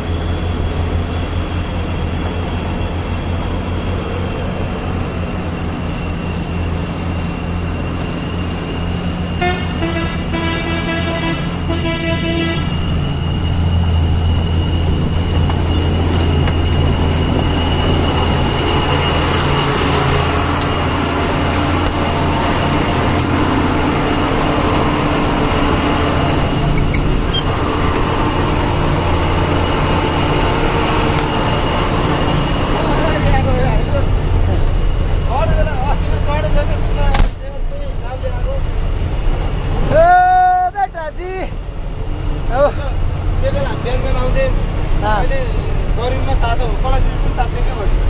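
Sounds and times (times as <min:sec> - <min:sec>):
truck engine droning: 0:00.0 - 0:48.0
horn honking: 0:09.4 - 0:12.9.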